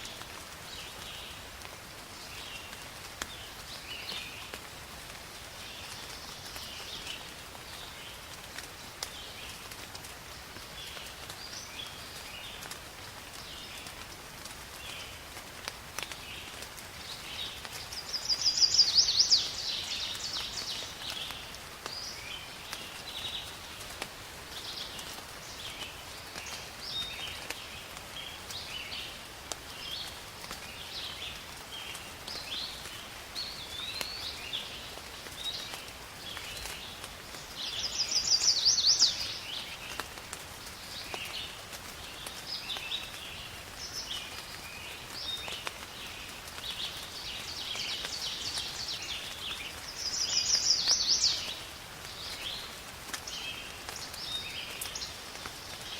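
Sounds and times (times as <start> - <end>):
faint steady hiss: 0.0 - 55.9
songbirds chirping and singing: 17.1 - 23.6, 30.8 - 40.0, 40.9 - 55.9.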